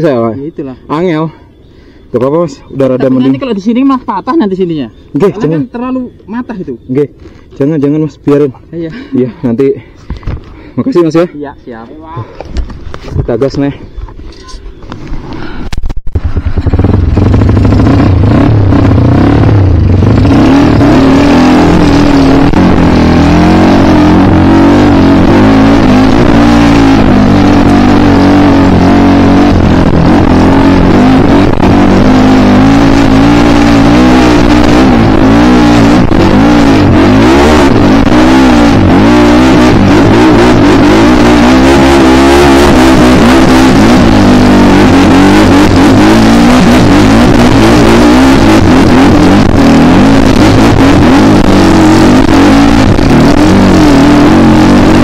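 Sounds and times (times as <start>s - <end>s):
motorcycle engine running hard: 16.1s - 55.0s.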